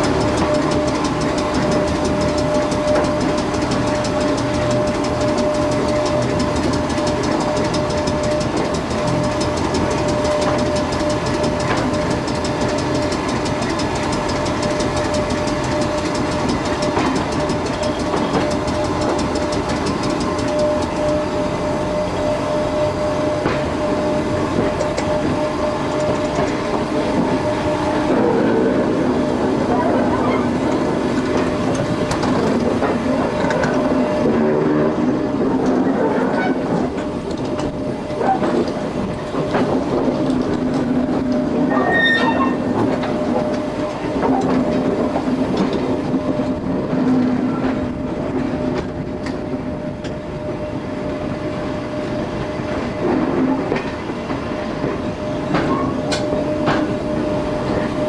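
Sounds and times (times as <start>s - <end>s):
wheel clicks: 0.0s - 21.4s
train wheels rumbling on rails: 0.0s - 58.0s.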